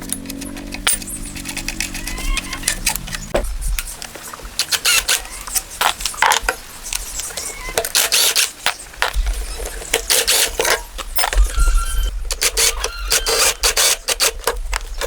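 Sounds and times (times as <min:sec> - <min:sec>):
metallic clicks and clinks of tools: 0:00.0 - 0:03.2
low hum: 0:00.0 - 0:03.8.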